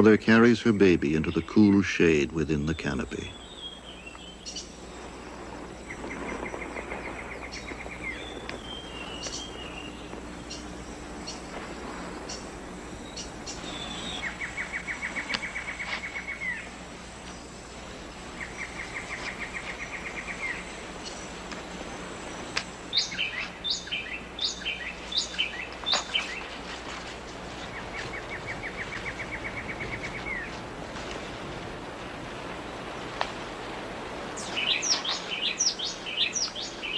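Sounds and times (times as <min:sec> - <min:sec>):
background hiss: 0:00.0 - 0:36.9
bird pulsing trill: 0:05.7 - 0:30.6, 0:34.3 - 0:36.9.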